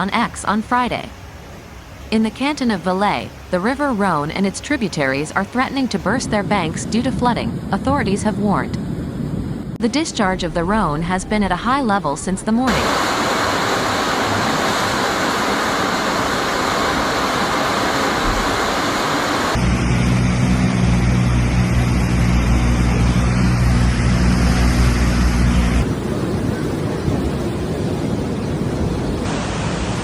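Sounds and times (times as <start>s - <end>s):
flooding river rushing: 12.7s - 19.6s, 25.8s - 30.0s.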